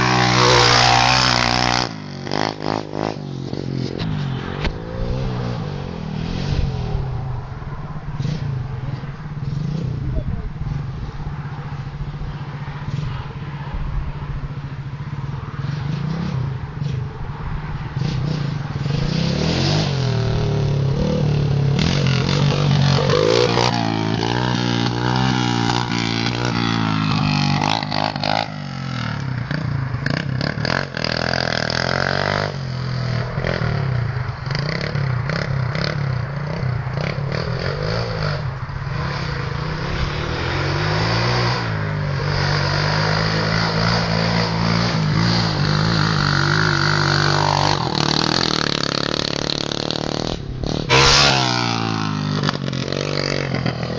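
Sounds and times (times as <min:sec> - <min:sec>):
pit bike engine revving: 0:00.0 - 0:07.4, 0:17.8 - 0:53.9.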